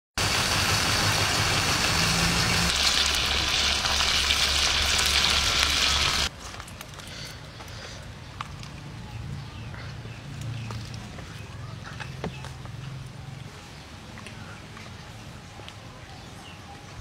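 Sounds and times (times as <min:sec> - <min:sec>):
chicken sizzling in a hot pan: 0:00.2 - 0:06.3.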